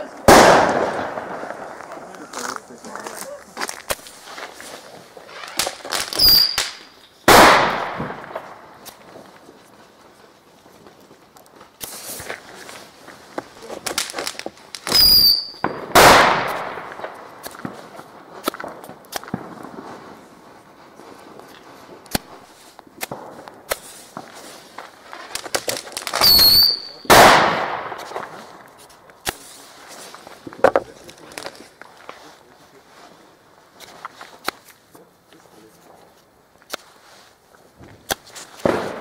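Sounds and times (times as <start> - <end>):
firecracker bangs: 0.0 - 2.0, 3.9 - 9.2, 13.8 - 20.3, 25.3 - 29.9, 38.5 - 39.0
loud firework bang: 0.3 - 1.6, 14.9 - 17.0, 38.6 - 39.0
firework whistle: 5.2 - 6.9, 14.8 - 16.0, 26.1 - 27.2.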